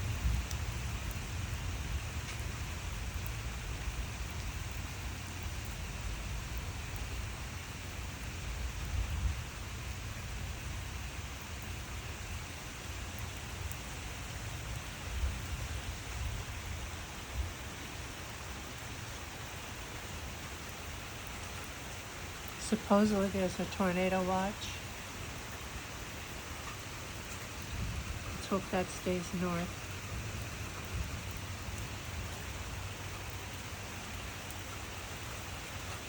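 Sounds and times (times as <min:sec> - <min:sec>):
steady rain: 0:00.0 - 0:36.0
low thunder rumble: 0:27.5 - 0:34.1.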